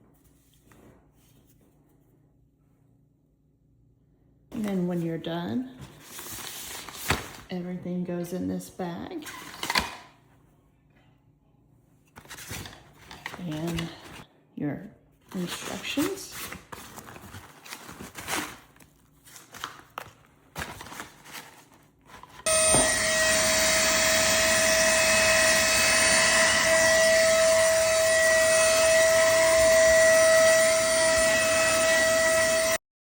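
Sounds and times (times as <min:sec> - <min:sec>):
mini vacuum motor whining: 0:22.4 - 0:32.8.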